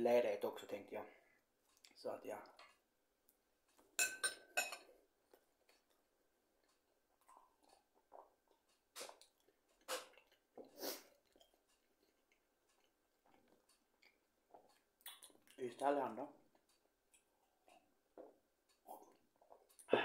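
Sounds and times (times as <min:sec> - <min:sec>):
person chewing food: 0:01.3 - 0:19.9
mouth clicks and smacks: 0:06.6 - 0:15.6, 0:16.4 - 0:20.0.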